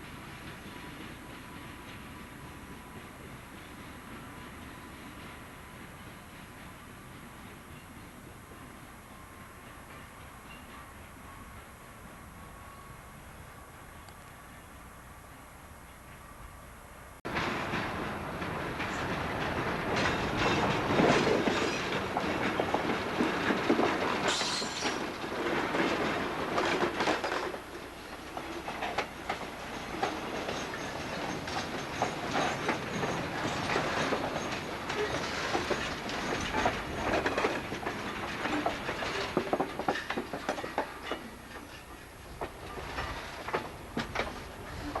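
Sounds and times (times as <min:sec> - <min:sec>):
train wheels clicking over rail joints: 0:17.3 - 0:45.0.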